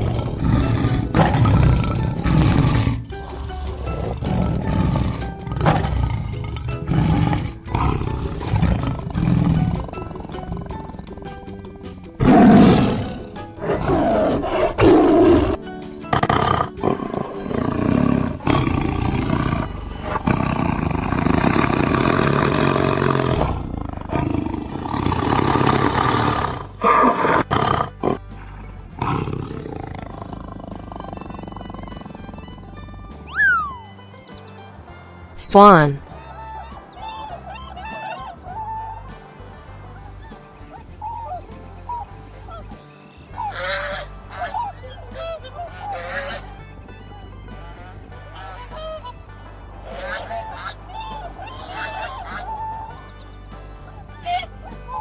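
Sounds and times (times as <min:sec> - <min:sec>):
large animal roaring and growling: 0:00.0 - 0:11.3, 0:12.2 - 0:28.2, 0:28.9 - 0:32.7
background music: 0:00.0 - 0:55.0.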